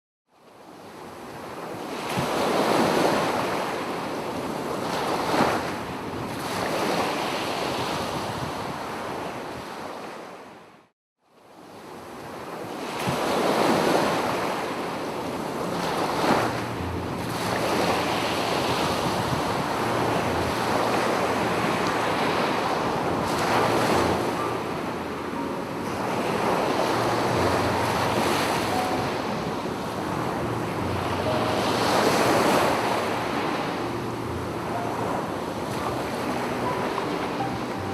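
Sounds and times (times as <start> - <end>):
sea waves breaking on beach: 0.5 - 10.6, 11.5 - 37.9
wind buffeting microphone: 7.6 - 9.8, 15.2 - 37.7.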